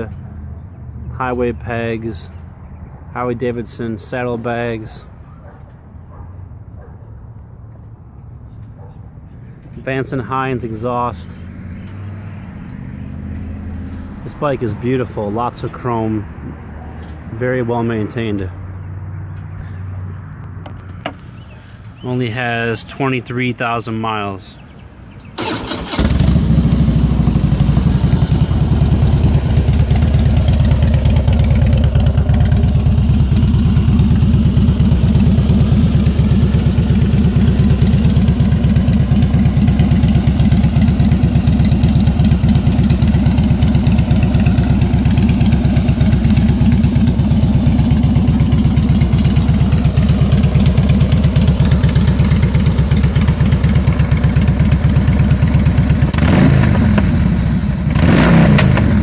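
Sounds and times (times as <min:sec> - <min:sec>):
motorcycle engine idling: 0:25.4 - 0:58.0.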